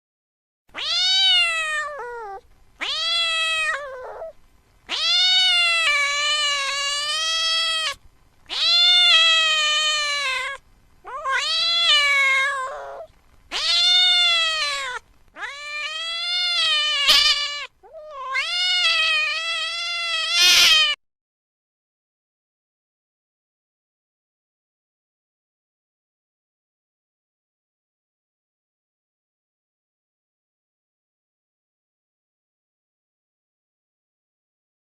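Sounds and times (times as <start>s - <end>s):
cat meowing: 0.7s - 21.0s.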